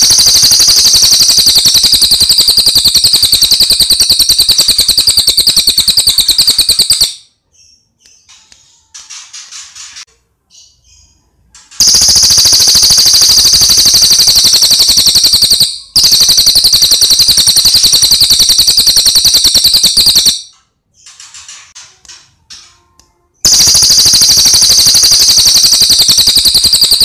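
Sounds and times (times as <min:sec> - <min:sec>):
songbird chirping and trilling: 0:05.9 - 0:16.2.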